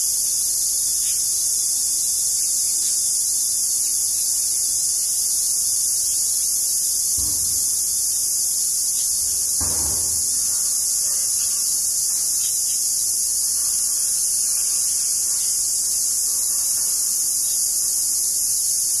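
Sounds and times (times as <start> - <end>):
insects calling shrill buzz: 0.0 - 19.0
low thump: 7.1 - 8.4, 9.0 - 11.1.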